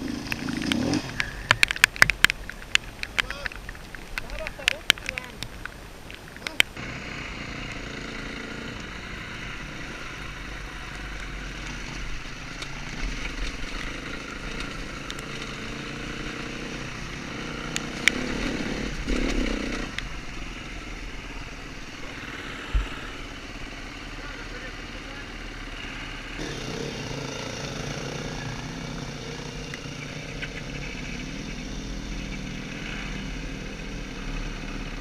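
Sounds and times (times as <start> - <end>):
dirt bike engine revving: 0.0 - 2.1, 6.8 - 35.0
sharp clicks: 0.2 - 6.8.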